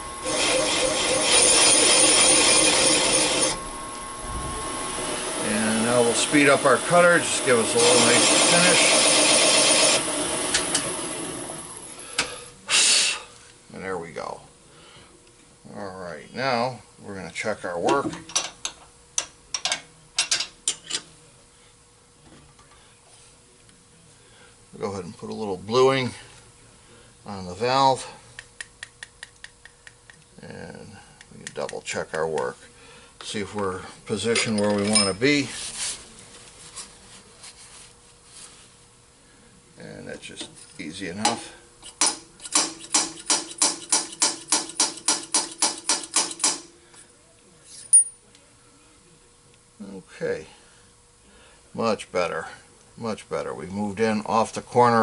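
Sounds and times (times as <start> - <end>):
steel tooling clicks and clanks: 41.3 - 46.7.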